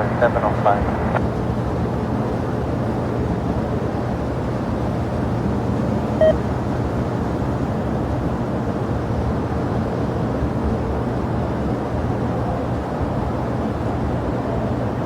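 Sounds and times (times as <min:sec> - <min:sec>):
faint steady hum: 0:00.0 - 0:01.4
jet engines rumbling: 0:00.0 - 0:07.0.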